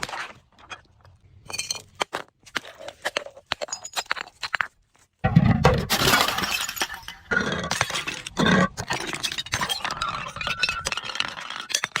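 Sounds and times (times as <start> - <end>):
glass shattering: 5.7 - 8.3, 8.9 - 12.0
glass pieces clinking: 9.0 - 12.0.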